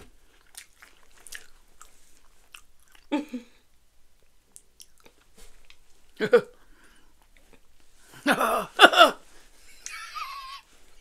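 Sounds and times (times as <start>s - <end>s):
chewing crunchy wafer bar: 0.2s - 3.1s.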